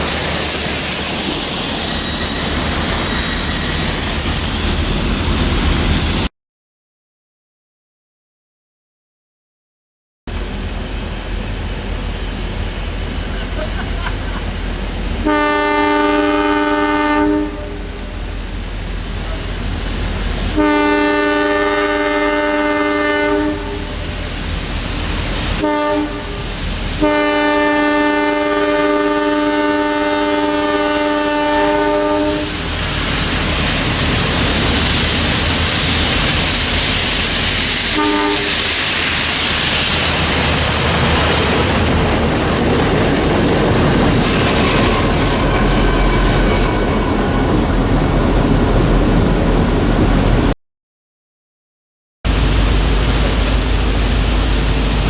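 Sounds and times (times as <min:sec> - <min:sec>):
train wheels rushing on rails: 0:00.0 - 0:06.3, 0:10.3 - 0:50.5, 0:52.3 - 0:55.0
locomotive horn blasts: 0:15.2 - 0:18.2, 0:20.5 - 0:24.0, 0:25.6 - 0:32.6, 0:37.9 - 0:38.7, 0:44.8 - 0:47.7.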